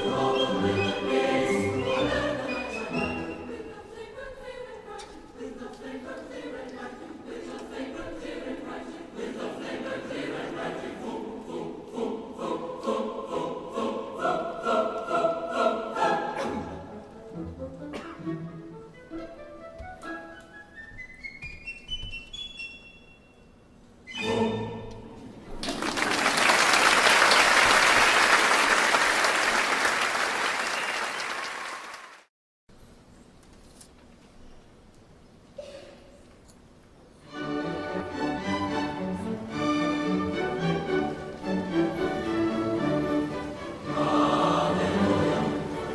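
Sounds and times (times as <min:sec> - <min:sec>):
choir singing: 0:00.0 - 0:18.3, 0:24.1 - 0:25.4, 0:37.3 - 0:45.9
audience applauding: 0:25.6 - 0:32.3.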